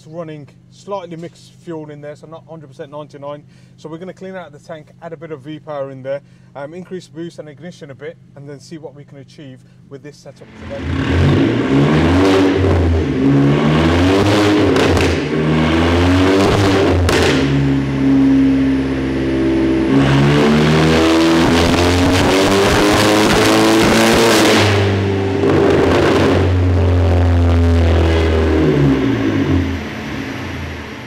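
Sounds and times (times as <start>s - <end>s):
car engine revving: 10.4s - 31.0s.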